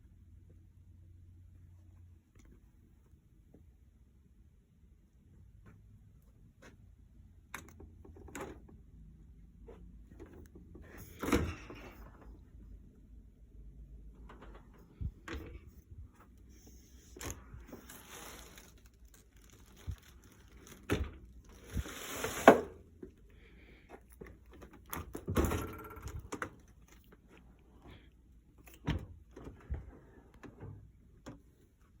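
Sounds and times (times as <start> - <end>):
sliding scrapes: 16.5 - 20.8, 21.4 - 22.8.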